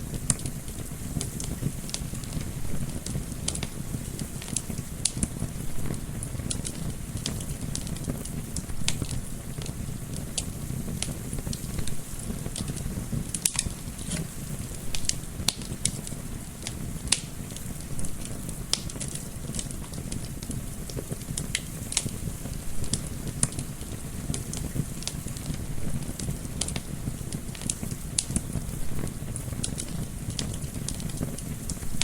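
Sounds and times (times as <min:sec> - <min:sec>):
wood fire crackling: 0:00.0 - 0:32.0.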